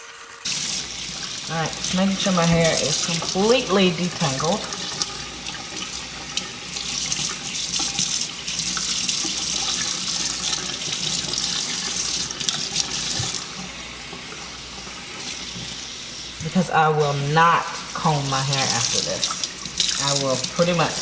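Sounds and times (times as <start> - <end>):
tap water running into sink: 0.0 - 21.0
water splashing through hair: 0.4 - 13.6, 16.4 - 21.0.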